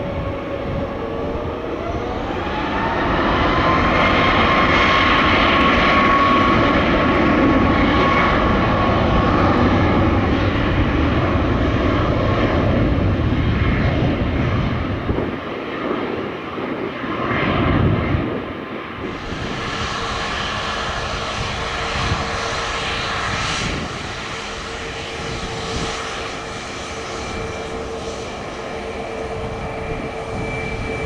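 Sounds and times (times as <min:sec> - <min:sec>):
jet engines roaring with whine: 0:00.0 - 0:31.0.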